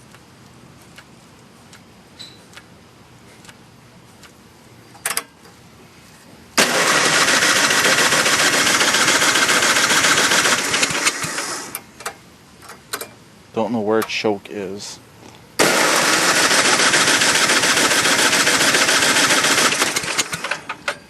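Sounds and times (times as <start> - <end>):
snowblower engine cranking: 6.6 - 11.9, 15.6 - 21.0.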